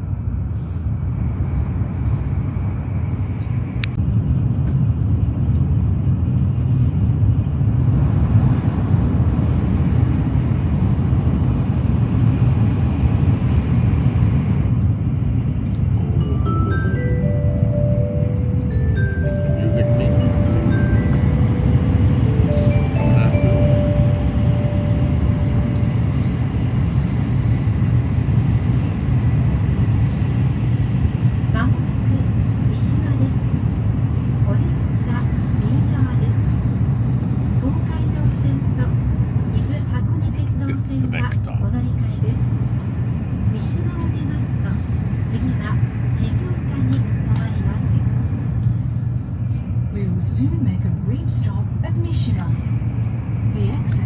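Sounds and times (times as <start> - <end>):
train rumble inside passenger car: 0.0 - 54.0
onboard chime: 16.0 - 25.7.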